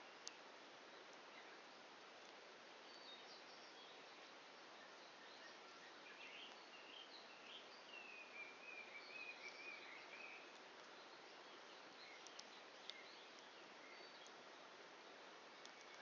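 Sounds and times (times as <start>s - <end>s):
campfire hissing and popping: 10.0s - 16.0s.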